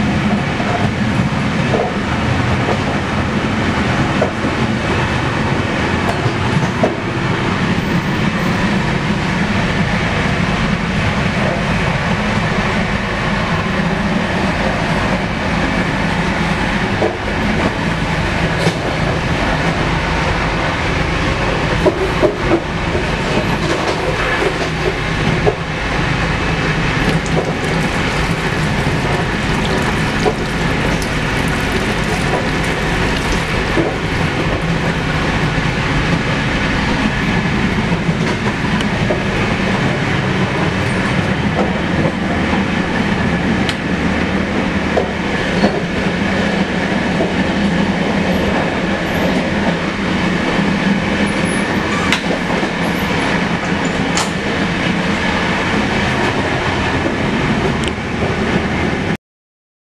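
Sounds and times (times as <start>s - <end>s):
train coach running noise: 0.0s - 59.2s.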